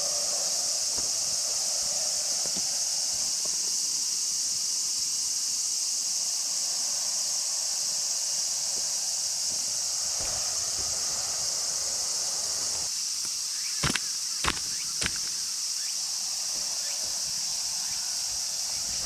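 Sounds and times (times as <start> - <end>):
high-pitched insect drone: 0.0 - 19.0
sharp clicks: 12.3 - 15.4.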